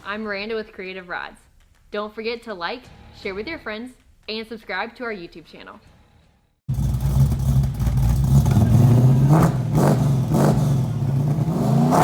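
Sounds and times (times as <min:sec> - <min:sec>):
car engine revving: 0:06.7 - 0:12.0.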